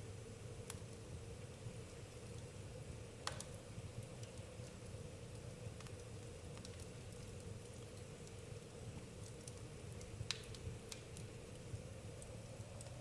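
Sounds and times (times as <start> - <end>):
campfire crackling: 0.0 - 13.0
sharp fire pops: 10.2 - 11.2.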